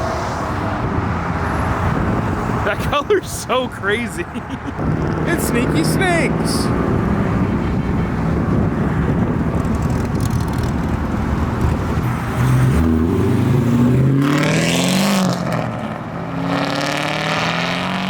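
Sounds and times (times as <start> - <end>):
car engine revving: 4.7 - 18.0.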